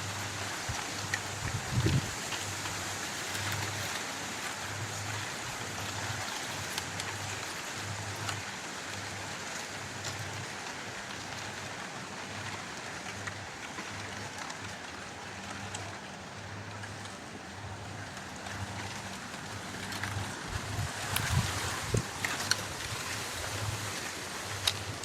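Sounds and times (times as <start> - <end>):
wind through trees: 0.0 - 25.0
footsteps on dry leaves: 19.2 - 25.0.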